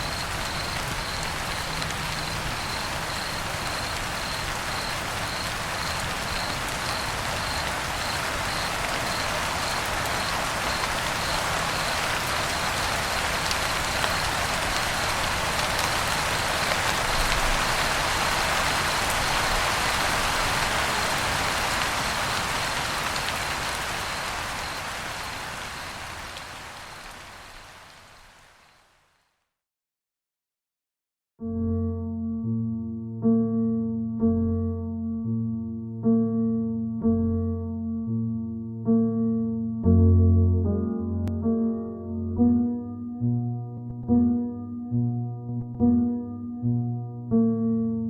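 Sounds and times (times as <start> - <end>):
rain on a roof: 0.0 - 29.4.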